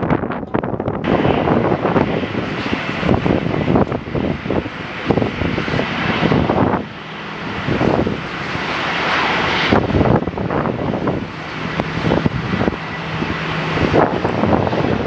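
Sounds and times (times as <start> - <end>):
airliner engines roaring: 0.0 - 15.0
wind buffeting microphone: 0.0 - 15.0.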